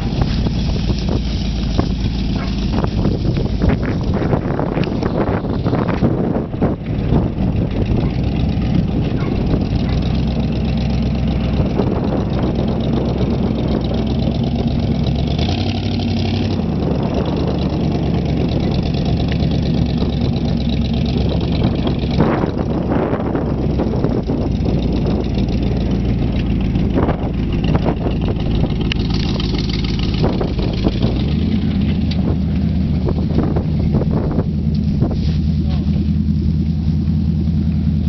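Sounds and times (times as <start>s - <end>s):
car engine running at low revs: 0.0s - 38.0s.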